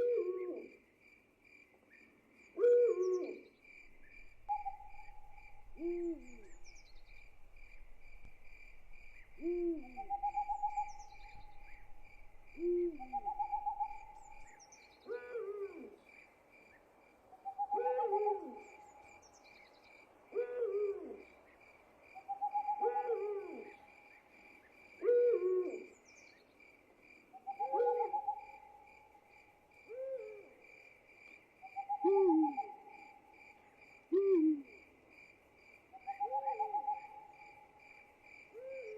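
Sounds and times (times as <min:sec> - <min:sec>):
crickets chirping: 0:00.0 - 0:38.9
owls hooting: 0:04.2 - 0:07.1, 0:09.1 - 0:14.5, 0:17.5 - 0:18.7, 0:22.3 - 0:23.8, 0:27.4 - 0:28.6, 0:31.8 - 0:32.8.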